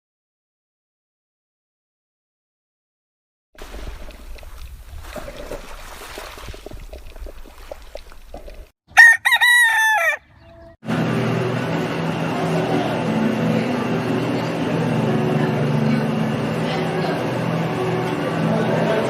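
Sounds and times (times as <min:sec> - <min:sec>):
rooster crowing: 0:08.9 - 0:10.6
steady hum: 0:10.9 - 0:19.0.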